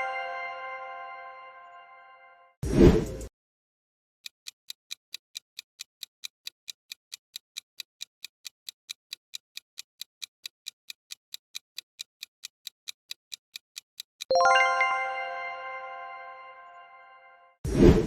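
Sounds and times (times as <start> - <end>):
clock ticking: 4.2 - 14.8.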